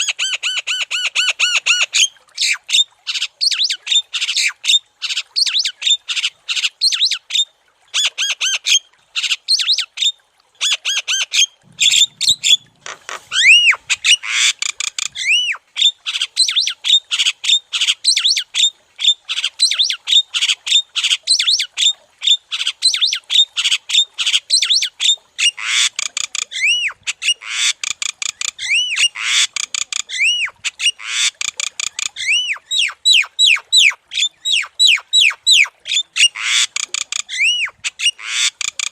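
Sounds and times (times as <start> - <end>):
bird squawking and chattering: 11.4 - 17.3, 28.3 - 38.9
bird whistled notes: 13.3 - 14.2.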